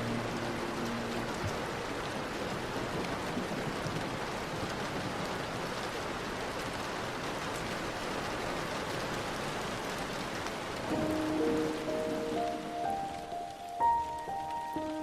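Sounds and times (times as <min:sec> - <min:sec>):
soft music: 0:00.0 - 0:02.5, 0:10.8 - 0:15.0
steady rain hiss: 0:00.0 - 0:15.0.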